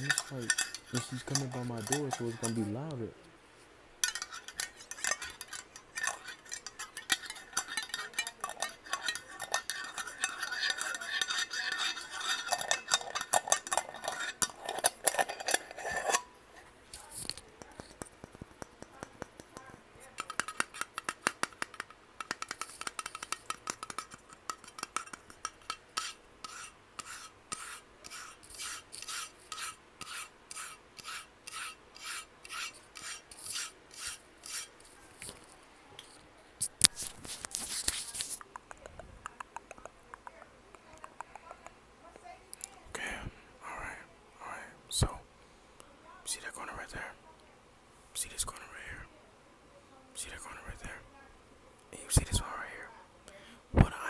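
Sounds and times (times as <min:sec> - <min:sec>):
fingers scratching on glass jar: 0:00.0 - 0:03.1, 0:04.0 - 0:35.4.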